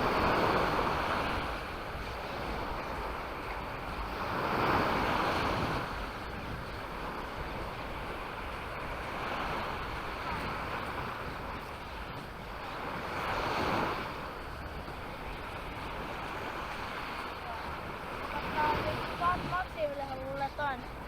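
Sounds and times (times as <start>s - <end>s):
surf washing onto beach: 0.0s - 21.0s
wind rumbling on microphone: 0.0s - 21.0s.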